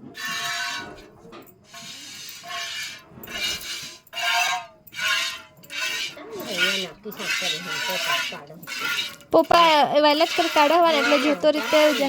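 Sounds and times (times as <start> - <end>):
milk squirting into a pail: 5.0 - 9.3.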